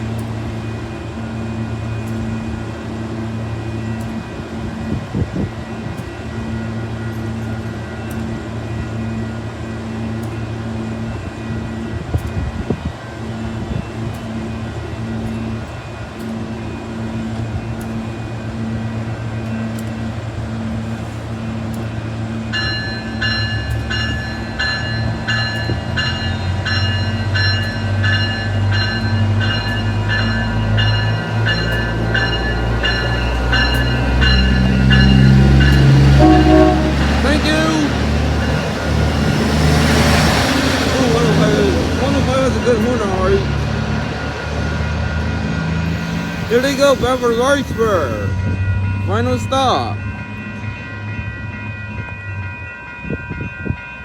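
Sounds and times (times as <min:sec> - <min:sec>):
diesel train engine running: 0:15.6 - 0:50.0
bell ringing: 0:30.4 - 0:38.5, 0:45.9 - 0:48.3.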